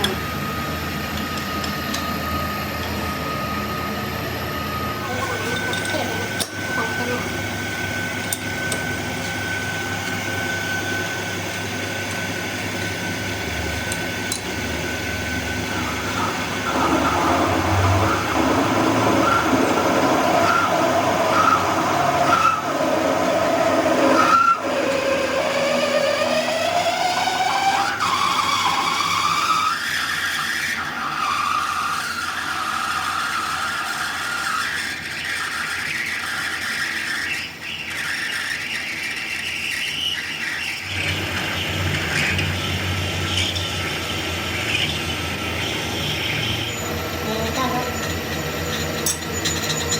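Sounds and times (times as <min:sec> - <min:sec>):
machine tool whining and squealing: 0:00.0 - 0:49.9.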